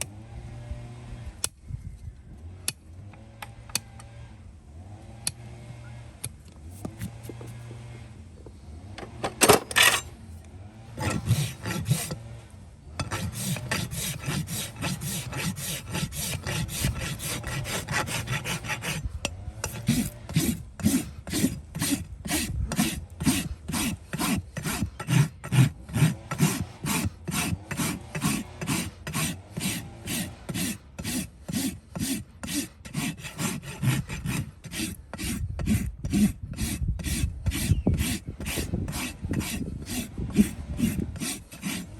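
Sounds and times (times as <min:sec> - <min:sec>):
rasp filing a hoof: 0:06.7 - 0:07.8, 0:09.8 - 0:10.1, 0:10.9 - 0:12.2, 0:13.0 - 0:41.9.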